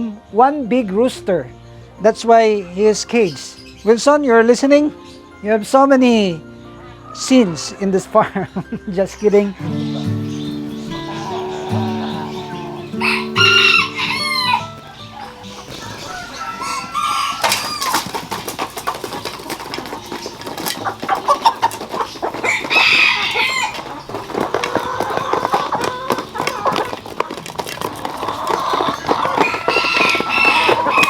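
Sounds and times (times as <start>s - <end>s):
chickens clucking: 0.0s - 31.0s
rooster crowing: 10.9s - 18.1s, 22.4s - 23.9s, 29.2s - 31.0s.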